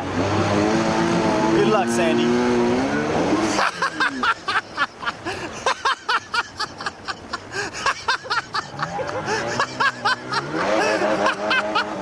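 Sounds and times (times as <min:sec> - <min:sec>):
person laughing hard: 0:03.6 - 0:12.0.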